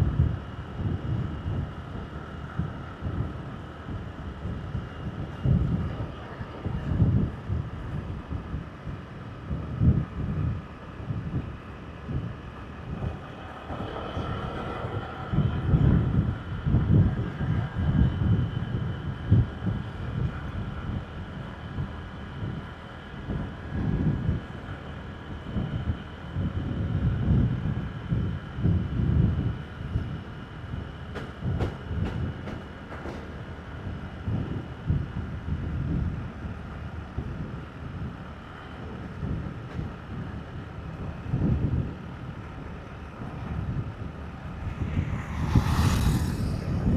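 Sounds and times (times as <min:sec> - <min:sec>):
wind buffeting microphone: 0:00.0 - 0:46.9
faint motorbike engine hum: 0:41.0 - 0:46.9.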